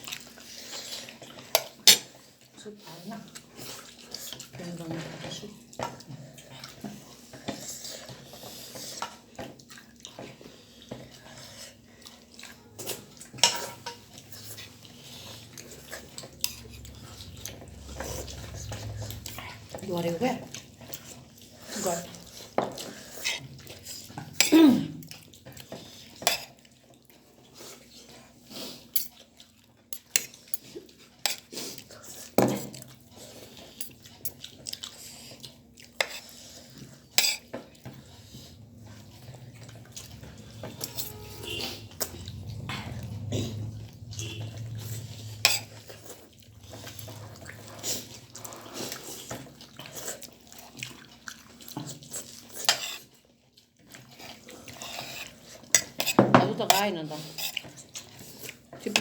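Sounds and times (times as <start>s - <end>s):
cutlery clinking on plates: 12.8s - 14.0s, 54.8s - 56.8s.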